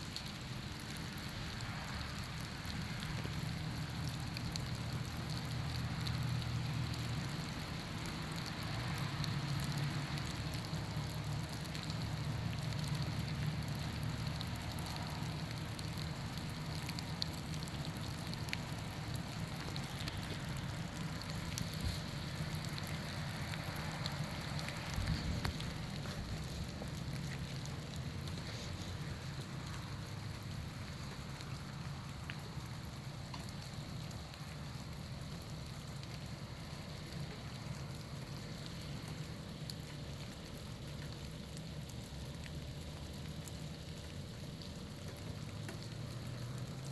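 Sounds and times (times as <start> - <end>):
rain pattering on icy trees: 0.0 - 46.9
small ticks: 0.1 - 46.9.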